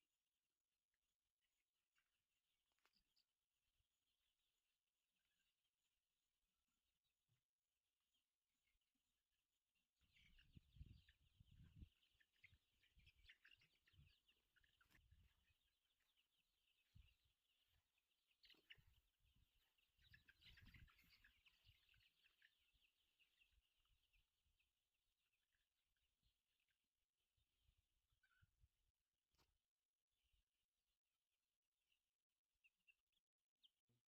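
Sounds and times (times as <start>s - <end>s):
hens chattering: 10.1s - 24.2s.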